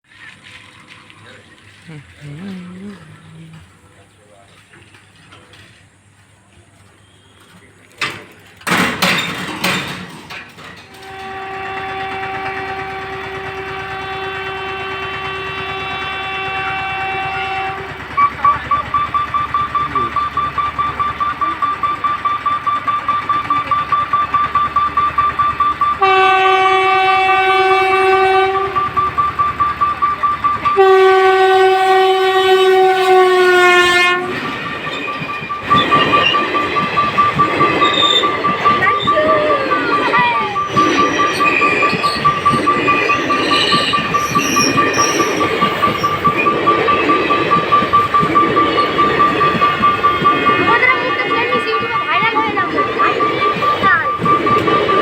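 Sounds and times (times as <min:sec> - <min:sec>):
train wheels rattling: 0:06.9 - 0:55.0
train horn blasts: 0:11.0 - 0:18.4, 0:26.0 - 0:29.3, 0:30.6 - 0:34.6
rapid beeping: 0:12.0 - 0:26.4, 0:27.0 - 0:31.0, 0:34.2 - 0:55.0.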